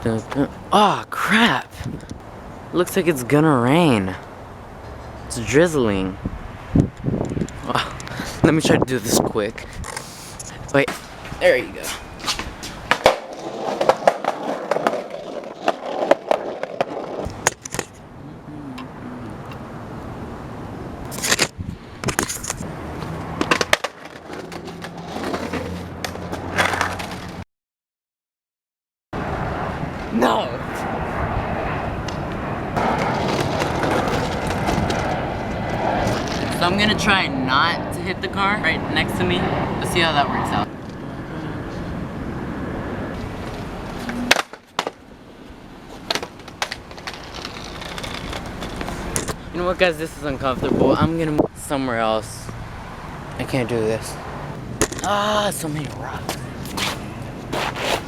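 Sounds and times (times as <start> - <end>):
skateboard wheels rolling on pavement: 6.4 - 18.2, 19.4 - 27.4, 29.2 - 37.2, 38.9 - 51.0, 52.0 - 58.0
skateboard clacking on ground: 11.9 - 18.0, 21.2 - 27.4, 32.8 - 35.2, 43.4 - 45.0, 45.9 - 49.4.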